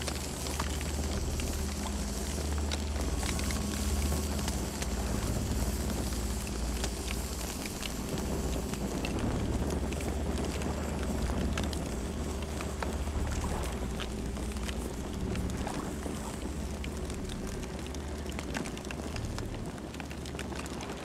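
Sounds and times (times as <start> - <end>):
campfire flames rumbling: 0.0 - 21.0
fire crackling and popping: 0.0 - 21.0.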